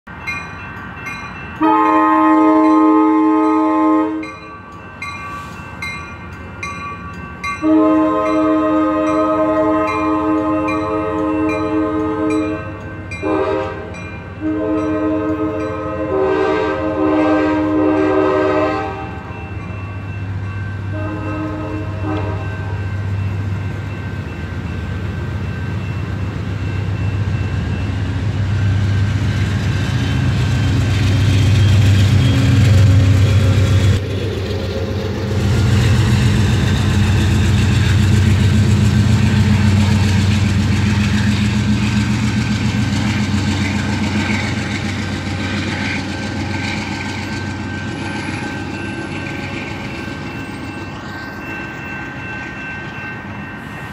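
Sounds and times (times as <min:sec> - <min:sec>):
diesel locomotive engine rumble: 0:00.1 - 0:53.9
train horn blasts: 0:01.6 - 0:04.4, 0:07.6 - 0:19.4, 0:20.9 - 0:22.8.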